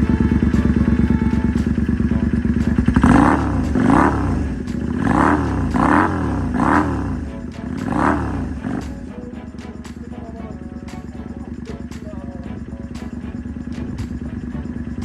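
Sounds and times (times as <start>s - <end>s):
motorcycle engine idling and revving: 0.0s - 9.0s.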